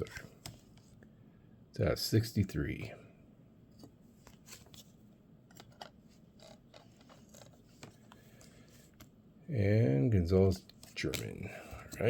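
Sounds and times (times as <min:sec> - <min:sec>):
trading cards flipped by hand: 0:03.8 - 0:09.1, 0:10.6 - 0:12.0.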